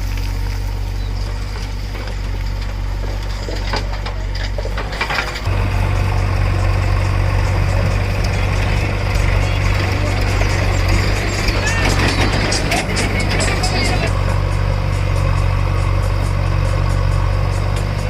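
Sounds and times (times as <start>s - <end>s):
diesel machinery running: 0.0s - 18.0s
knocks and rattles: 1.4s - 14.8s.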